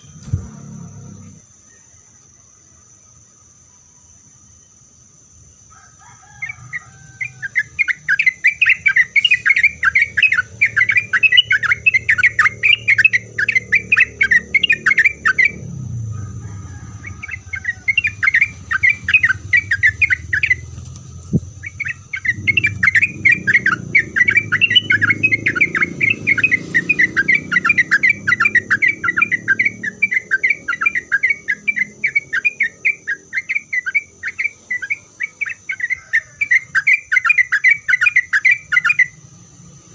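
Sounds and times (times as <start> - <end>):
bird singing chattering notes: 0.0 - 2.0, 7.2 - 15.9, 17.0 - 39.2
high-pitched whine: 7.6 - 35.2.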